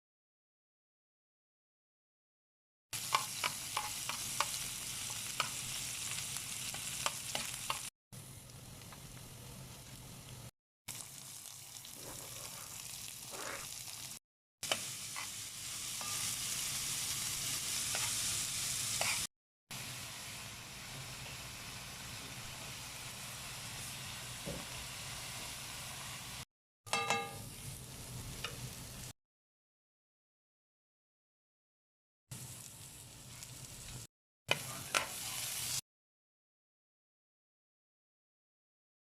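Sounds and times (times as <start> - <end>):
food sizzling in hot oil: 3.0 - 26.5, 27.2 - 29.1, 32.3 - 35.8
sharp ringing sound: 26.9 - 27.4.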